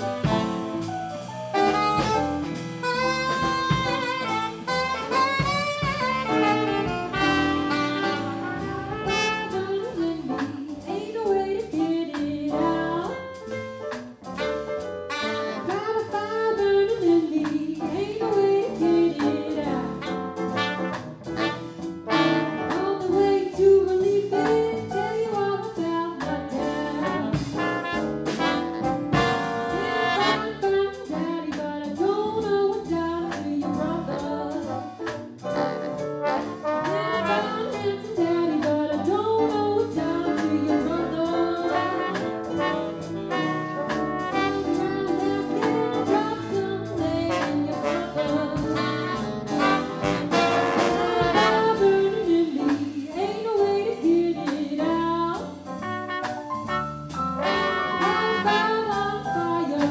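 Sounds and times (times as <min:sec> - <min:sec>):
swing jazz band playing: 0:00.0 - 0:59.9
woman singing: 0:09.4 - 0:13.4, 0:15.6 - 0:20.2, 0:22.7 - 0:27.8, 0:29.8 - 0:35.2, 0:37.2 - 0:42.2, 0:44.4 - 0:49.2, 0:50.4 - 0:55.7, 0:58.0 - 0:59.9.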